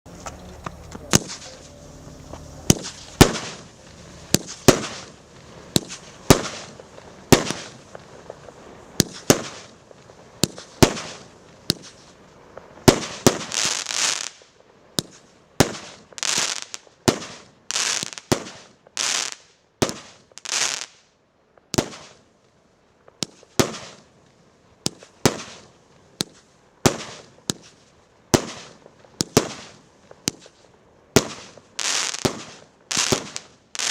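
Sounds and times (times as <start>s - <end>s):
fireworks bangs: 0.1s - 21.0s, 21.7s - 22.2s, 23.1s - 33.9s
crackling hiss of fireworks stars: 0.1s - 33.9s.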